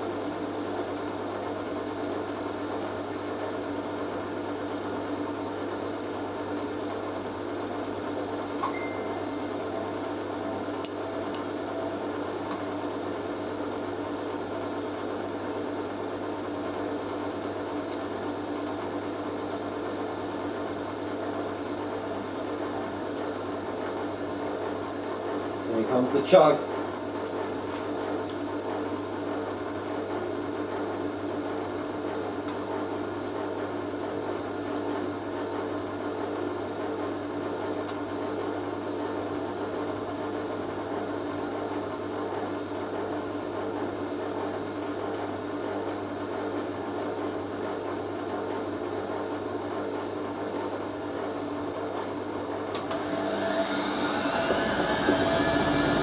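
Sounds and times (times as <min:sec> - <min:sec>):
washing machine spinning: 0:26.8 - 0:56.0
rising motor whine: 0:53.0 - 0:56.0.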